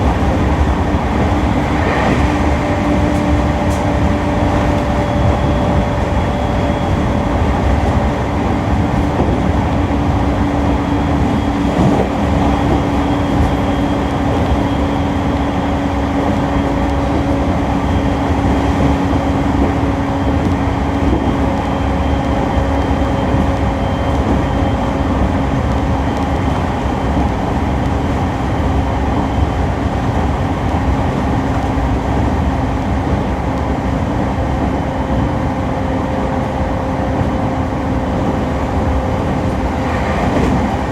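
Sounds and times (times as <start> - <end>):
electric train motor hum: 0.0 - 27.4
rail and wheel rumble: 0.0 - 40.9.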